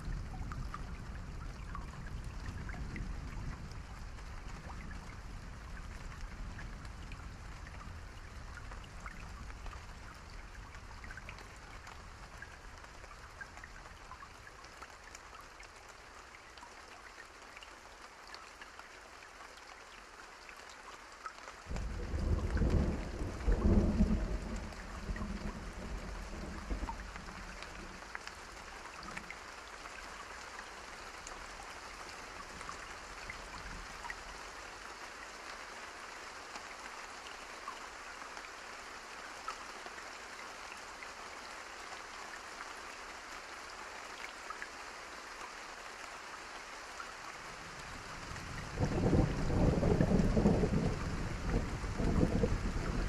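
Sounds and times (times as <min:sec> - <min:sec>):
steady rain: 0:00.0 - 0:53.0
thunder rolling: 0:21.7 - 0:27.0, 0:48.6 - 0:53.0.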